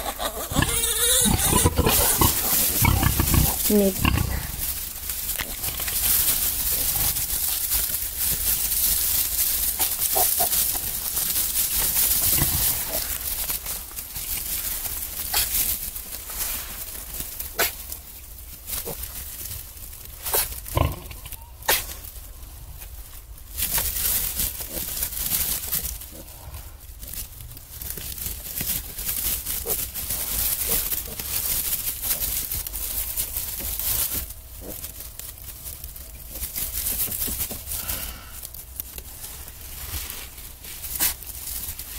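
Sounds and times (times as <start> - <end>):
piglets squealing and grunting: 0.0 - 4.7, 9.8 - 10.8
steady rustling hiss: 0.0 - 41.9.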